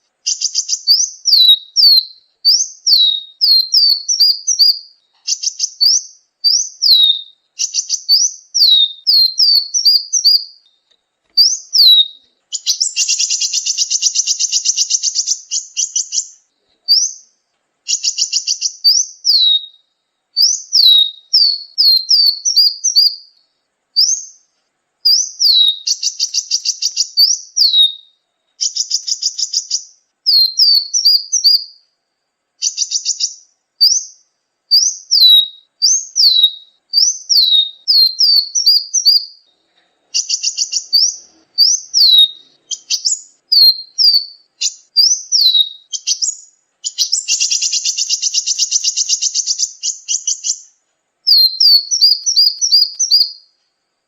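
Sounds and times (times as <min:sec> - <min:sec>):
buzzy bird trills: 0:00.0 - 0:10.6, 0:11.4 - 0:17.3, 0:25.1 - 0:31.8, 0:40.1 - 0:53.6
sunbird whistled song: 0:00.0 - 0:53.8.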